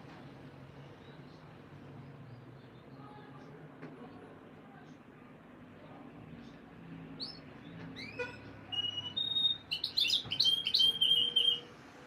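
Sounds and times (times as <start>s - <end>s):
canary singing: 8.0s - 11.7s.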